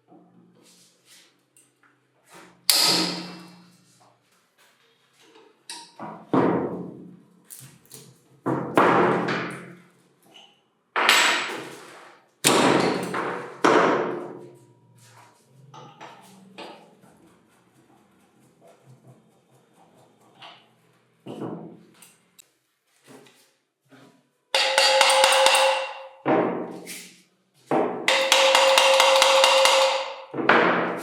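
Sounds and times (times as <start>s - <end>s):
hammer blows on metal: 24.6s - 26.2s.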